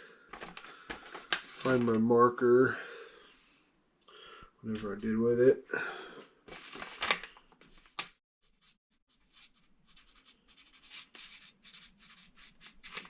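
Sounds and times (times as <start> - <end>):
marker pen writing: 8.4 - 13.0.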